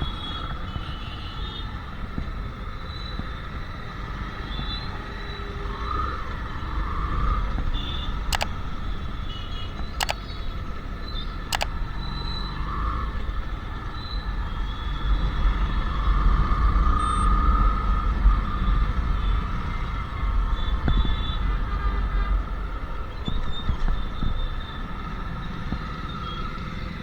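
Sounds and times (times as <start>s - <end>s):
wind and road noise: 0.0s - 27.0s
sharp clicks: 8.3s - 9.0s, 9.9s - 10.6s, 11.5s - 11.8s.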